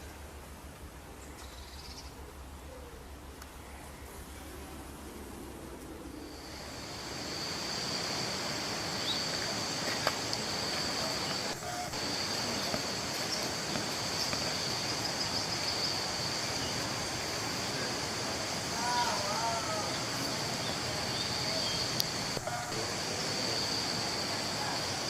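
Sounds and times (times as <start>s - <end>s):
outdoor background hiss: 0.0s - 25.0s
high-pitched insect drone: 6.2s - 25.0s.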